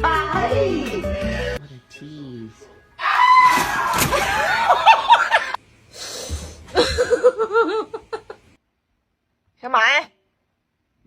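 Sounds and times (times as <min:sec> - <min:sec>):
person laughing: 0:04.1 - 0:05.6, 0:06.7 - 0:08.5.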